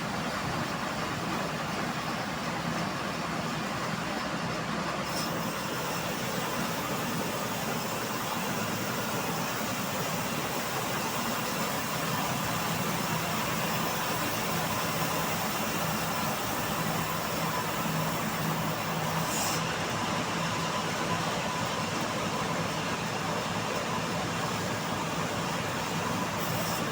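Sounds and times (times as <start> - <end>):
bandsaw mill cutting wood: 5.0 - 20.5, 24.6 - 26.9.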